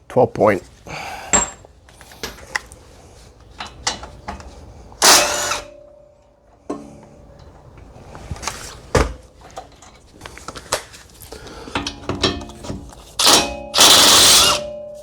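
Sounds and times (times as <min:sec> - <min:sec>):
impact wrench hammering: 0:05.0 - 0:05.8, 0:13.2 - 0:15.0.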